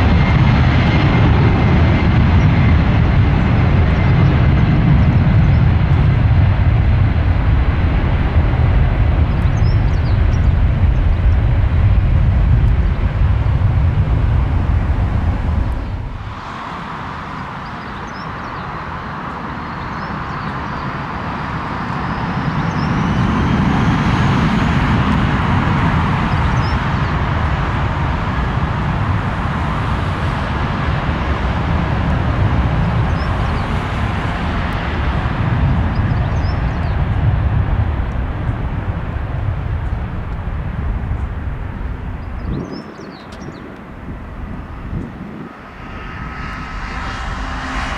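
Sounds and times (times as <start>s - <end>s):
jet engines roaring: 0.0s - 47.9s
faint rising whine: 13.7s - 18.2s, 43.8s - 47.9s.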